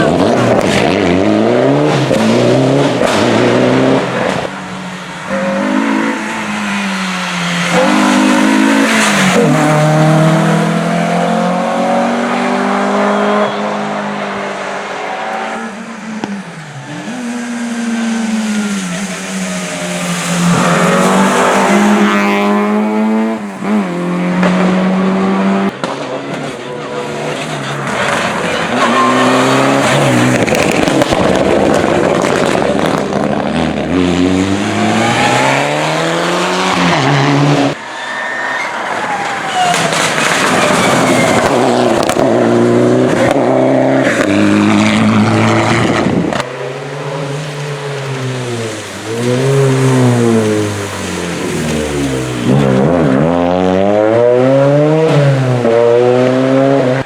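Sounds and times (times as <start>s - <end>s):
rally car engine revving: 0.0s - 37.9s, 38.8s - 57.0s
sharp cracks: 39.0s - 42.3s.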